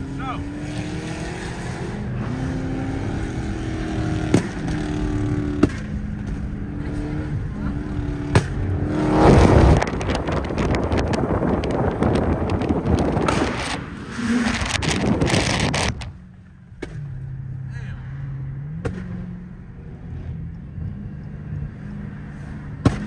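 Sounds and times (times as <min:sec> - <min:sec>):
car engine running: 0:00.0 - 0:23.0
loud rush of noise: 0:08.8 - 0:16.2.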